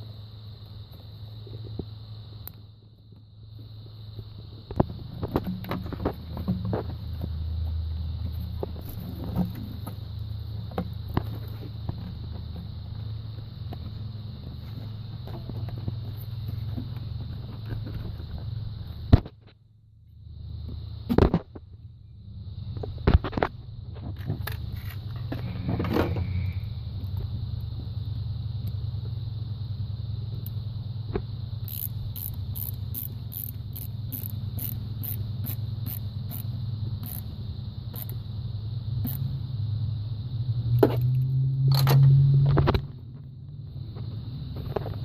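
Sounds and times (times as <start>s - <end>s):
light regular ticking: 31.2s - 38.3s, 39.0s - 39.3s.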